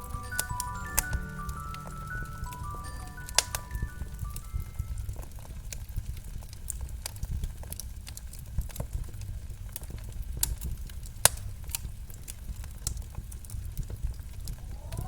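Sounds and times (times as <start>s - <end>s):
wood fire crackling and popping: 0.0s - 14.8s
low steady fire rumble: 3.3s - 15.0s.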